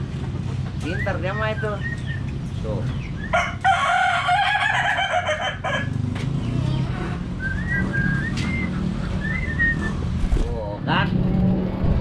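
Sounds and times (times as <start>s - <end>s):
rooster crowing: 3.3s - 6.0s.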